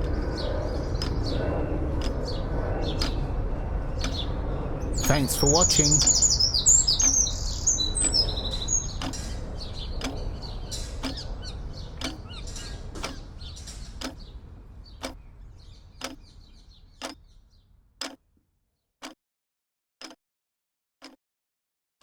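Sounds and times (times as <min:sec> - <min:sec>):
birdsong: 0:00.0 - 0:18.2
sharp ticking: 0:05.0 - 0:11.4, 0:12.0 - 0:13.4, 0:14.0 - 0:14.3, 0:15.0 - 0:15.2, 0:16.0 - 0:16.2, 0:17.0 - 0:17.2.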